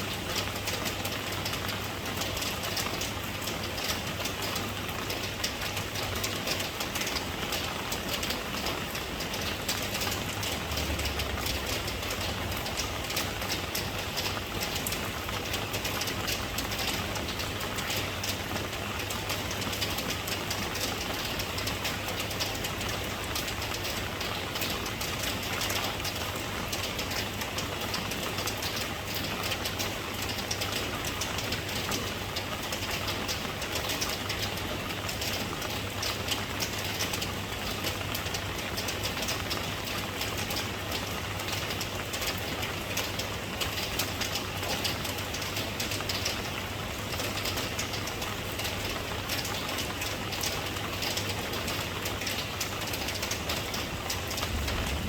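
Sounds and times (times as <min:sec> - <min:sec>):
steady rain patter: 0:00.0 - 0:55.0
low rumble: 0:54.3 - 0:55.0.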